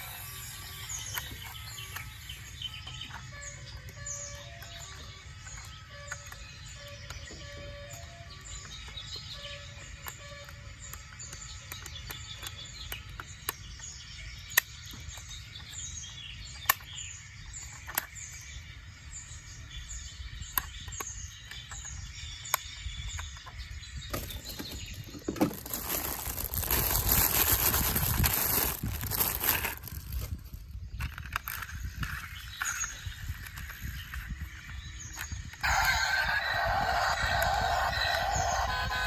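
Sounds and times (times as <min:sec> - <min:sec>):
birds chirping: 0:00.0 - 0:39.0
crunching scraping noise: 0:23.2 - 0:39.0.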